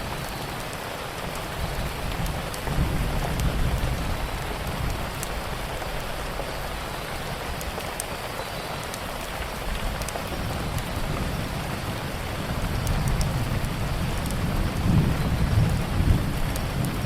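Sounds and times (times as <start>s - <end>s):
rain: 0.0s - 17.0s
wood fire crackling: 0.0s - 17.0s
thunder rumbling: 1.6s - 6.6s, 9.6s - 17.0s.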